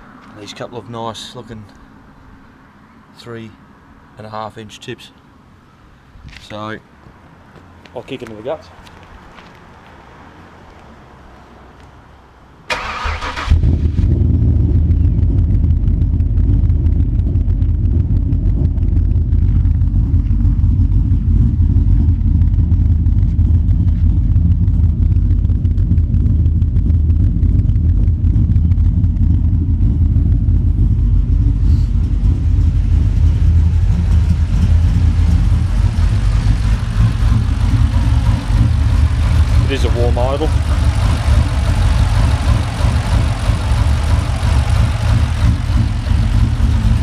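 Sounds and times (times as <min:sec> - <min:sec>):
car engine idling: 0:12.7 - 0:47.0.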